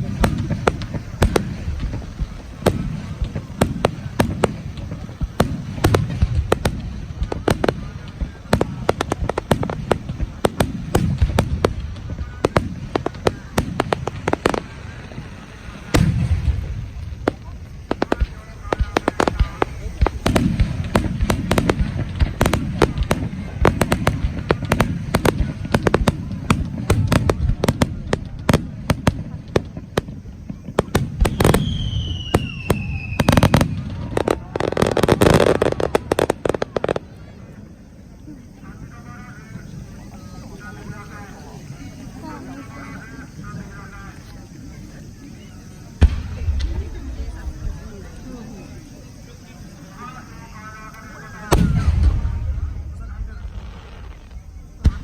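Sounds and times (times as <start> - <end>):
low rumble of booms: 0.0 - 34.6, 46.0 - 48.9, 51.5 - 55.0
fireworks cracks and pops: 0.0 - 37.6, 45.9 - 49.4, 50.0 - 55.0.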